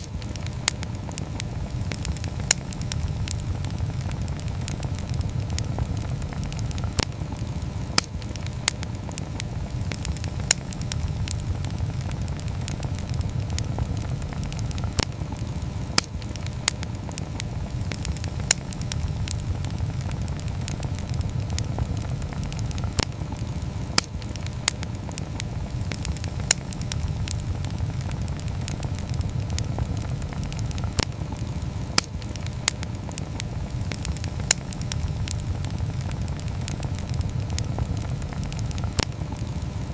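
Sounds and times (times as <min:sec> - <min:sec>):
campfire flames rumbling: 0:00.0 - 0:39.9
fire crackles and pops: 0:00.0 - 0:39.9.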